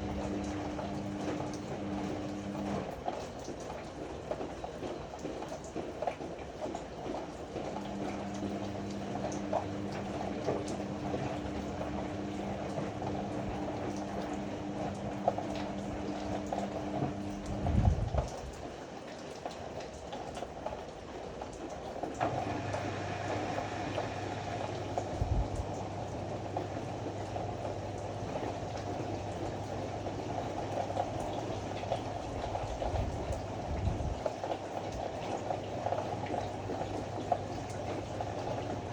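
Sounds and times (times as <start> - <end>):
motor hum: 0.0 - 3.0, 7.6 - 18.4, 22.2 - 38.9
washing drum swishing: 0.0 - 19.5, 21.4 - 38.9.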